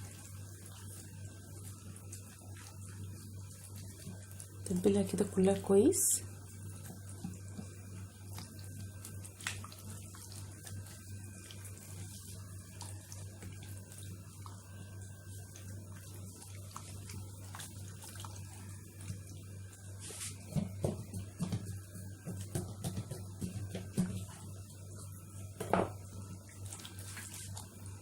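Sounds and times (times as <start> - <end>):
hands squishing marinade into chicken: 6.8 - 14.6, 26.6 - 27.8.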